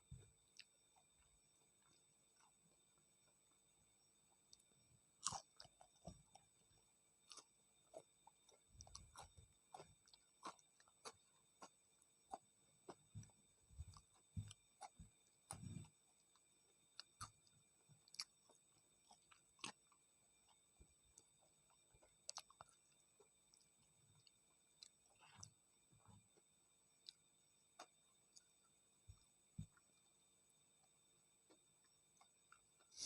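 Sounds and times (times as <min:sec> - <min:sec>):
chewing with mouth clicks: 0:05.2 - 0:06.5, 0:07.3 - 0:16.4, 0:17.0 - 0:25.6.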